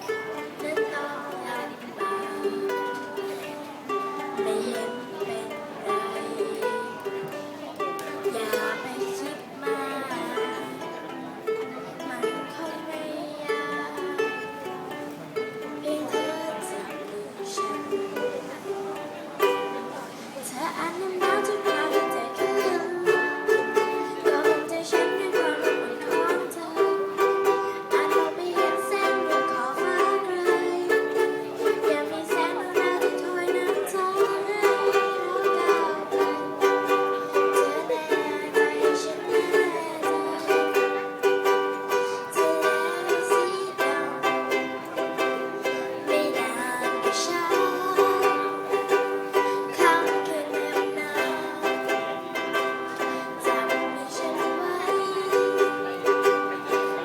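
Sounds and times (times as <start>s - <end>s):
ukulele playing: 0.0s - 57.0s.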